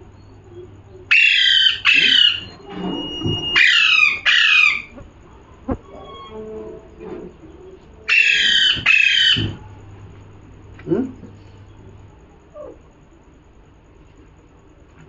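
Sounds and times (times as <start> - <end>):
parrot screeching: 1.1 - 2.6, 3.4 - 5.0, 8.1 - 9.6.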